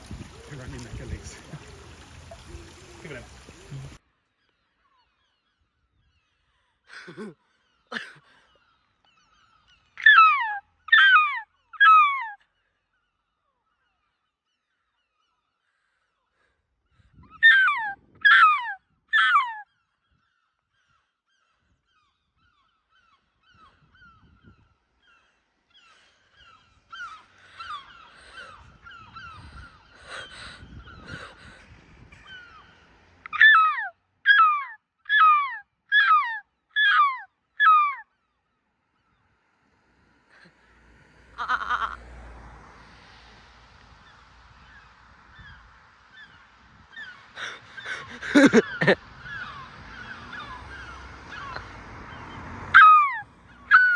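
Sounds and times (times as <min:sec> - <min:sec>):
gull squealing: 0:10.0 - 0:12.4, 0:17.4 - 0:19.6, 0:33.3 - 0:38.0, 0:41.4 - 0:42.0, 0:46.9 - 0:53.9.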